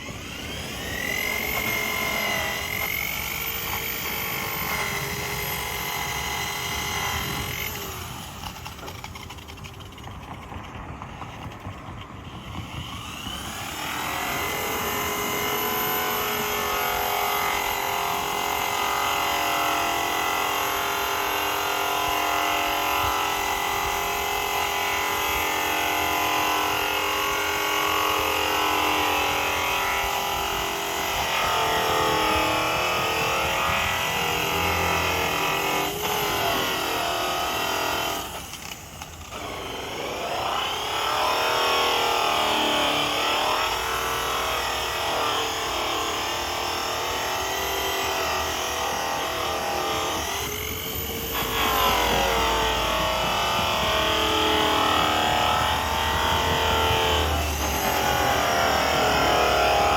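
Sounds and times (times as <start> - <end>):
buffing wheel whining: 0.0 - 18.3, 28.4 - 40.8.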